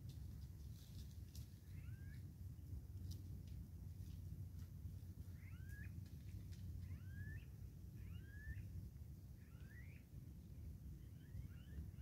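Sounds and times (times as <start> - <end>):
steady low rumble: 0.0 - 12.0
bird whistling call: 5.4 - 5.9, 6.9 - 8.7, 9.4 - 10.0.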